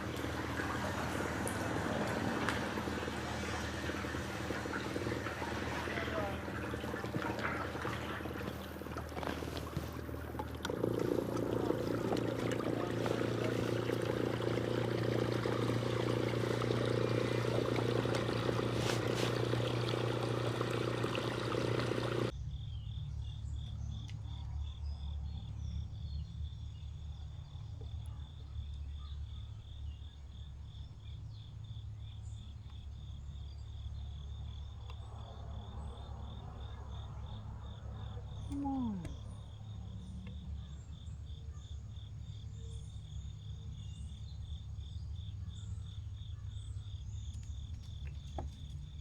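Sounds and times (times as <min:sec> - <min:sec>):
small motor humming: 0:00.0 - 0:22.3.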